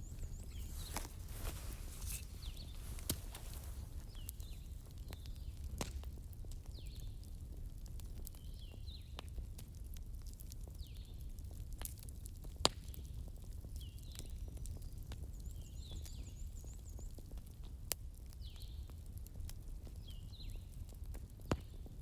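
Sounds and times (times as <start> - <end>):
wood fire crackling: 0.0 - 13.8.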